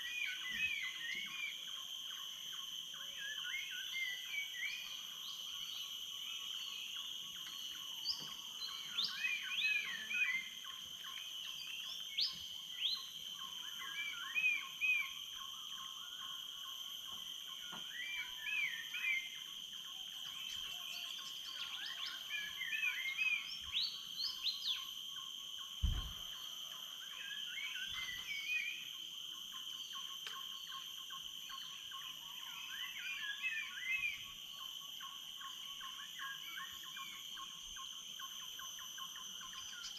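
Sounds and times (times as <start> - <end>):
high-pitched insect drone: 0.0 - 39.9
low thump: 25.8 - 26.2.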